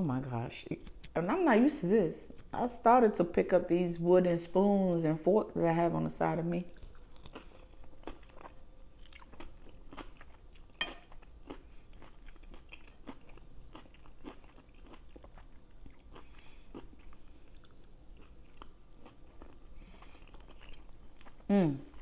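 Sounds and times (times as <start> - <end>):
chewing and mouth smacks: 0.7 - 1.2, 2.2 - 2.6, 6.7 - 22.0.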